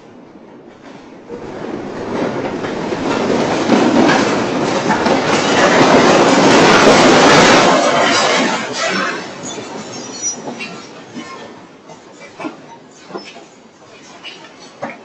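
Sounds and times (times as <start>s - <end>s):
building rattling in earthquake: 1.4s - 10.7s.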